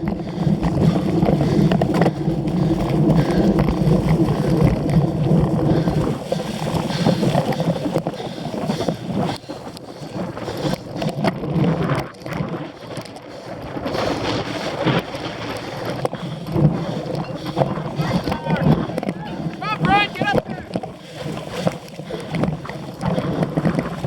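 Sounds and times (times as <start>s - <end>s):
bike knocks and rattles: 0.0s - 9.5s
wind buffeting microphone: 0.0s - 24.0s.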